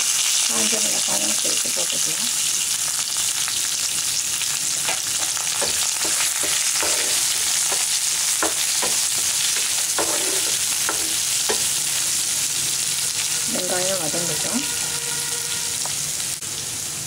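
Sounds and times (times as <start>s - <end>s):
vegetables sizzling in hot oil: 0.0s - 17.0s
wooden spatula scraping pan: 4.8s - 11.8s.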